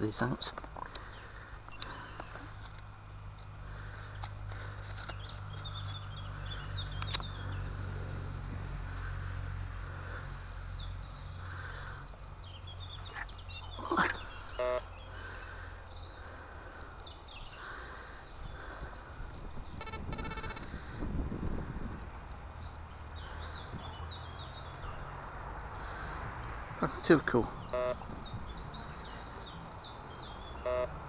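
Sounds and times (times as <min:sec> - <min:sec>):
metal detector target beep: 0:14.6 - 0:14.8, 0:27.7 - 0:28.0, 0:30.6 - 0:30.9.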